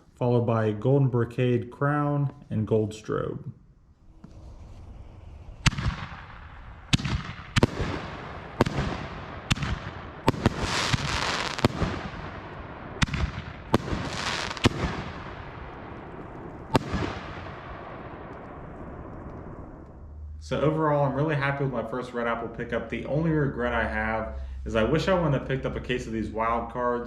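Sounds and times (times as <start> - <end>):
firework crackling: 4.1 - 19.9.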